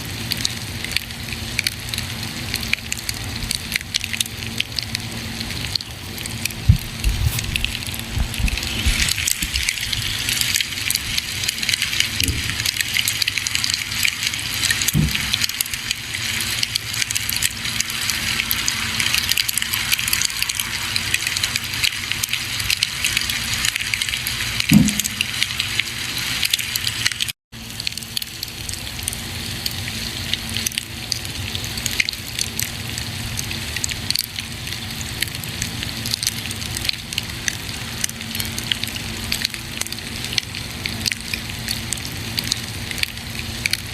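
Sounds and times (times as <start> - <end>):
campfire crackling and hissing: 0.0 - 43.9
campfire pops: 5.7 - 23.3, 24.0 - 25.9.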